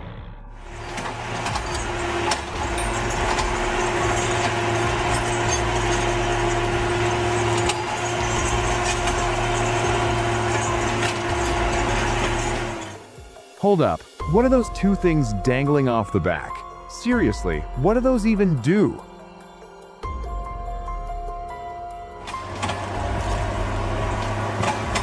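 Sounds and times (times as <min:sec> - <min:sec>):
vehicle engine humming: 0:00.0 - 0:25.0
mechanical and road noise: 0:00.6 - 0:13.5, 0:20.0 - 0:25.0.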